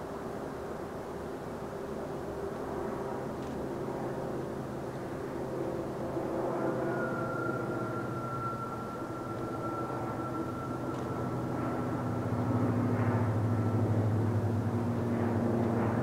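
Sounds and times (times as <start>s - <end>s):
electric train humming past: 0.0s - 16.0s
thin high steady tone: 5.6s - 14.1s.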